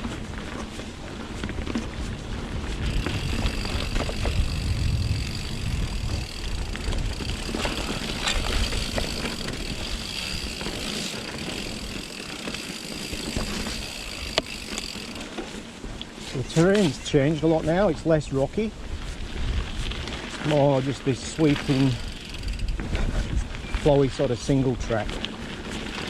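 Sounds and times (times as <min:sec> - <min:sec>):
wind buffeting microphone: 0:00.0 - 0:12.2, 0:15.8 - 0:24.2
clicks and knocks from bike: 0:00.0 - 0:17.1, 0:24.9 - 0:26.0
bike tyres rolling on wet trail: 0:00.0 - 0:26.0.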